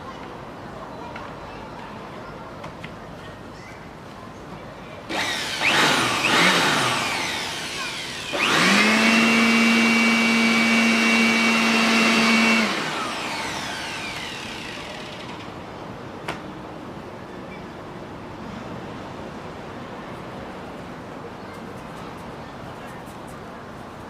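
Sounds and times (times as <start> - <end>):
electric blower motor whining: 5.1 - 15.4.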